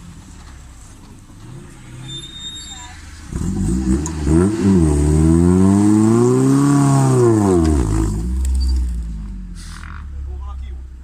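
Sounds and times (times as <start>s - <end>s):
vehicle engine revving: 3.0s - 10.3s.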